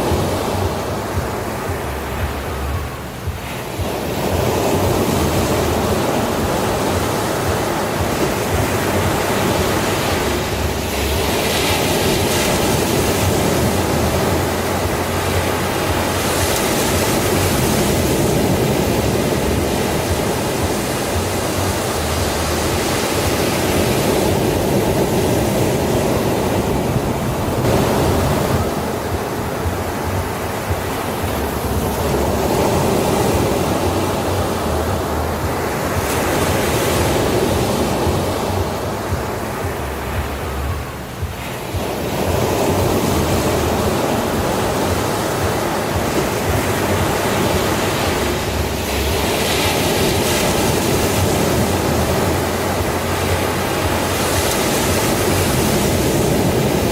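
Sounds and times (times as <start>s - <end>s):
sea waves breaking on beach: 0.0s - 56.9s.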